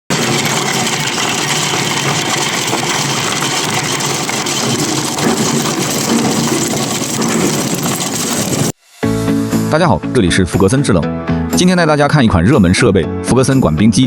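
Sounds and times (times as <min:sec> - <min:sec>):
ice machine droning: 0:00.1 - 0:08.8.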